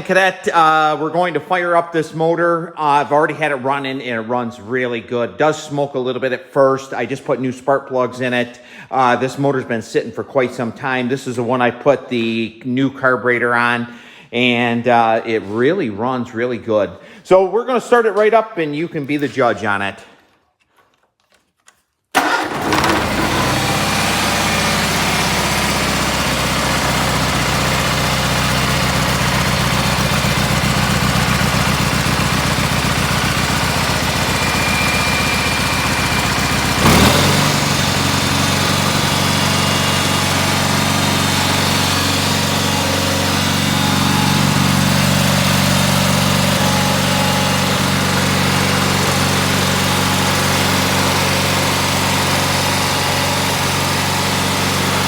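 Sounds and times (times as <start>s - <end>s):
garden tractor engine running: 22.2s - 55.0s.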